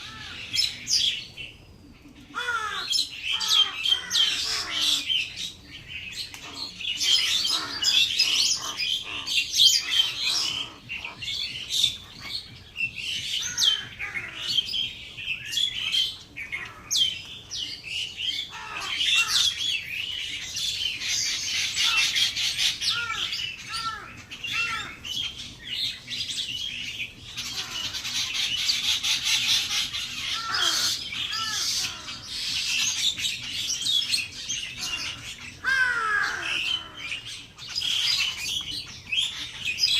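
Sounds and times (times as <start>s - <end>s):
flock of birds chirping: 0.0s - 39.9s
low bird squawks: 27.3s - 33.7s.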